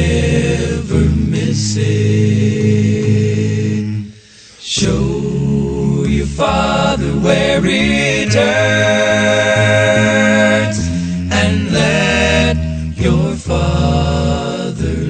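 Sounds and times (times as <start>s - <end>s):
person singing long notes: 4.7s - 15.0s
sustained low accompaniment: 4.7s - 15.0s.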